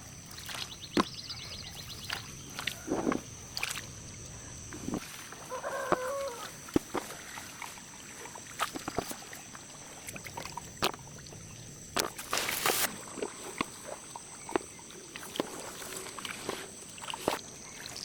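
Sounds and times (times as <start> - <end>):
chicken calling: 5.4 - 6.5.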